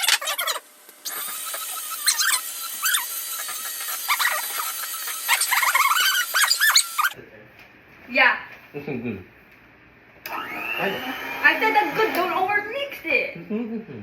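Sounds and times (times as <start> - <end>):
high-pitched squeals: 0.0 - 7.2
electric hand mixer running: 0.2 - 7.2, 10.3 - 12.8.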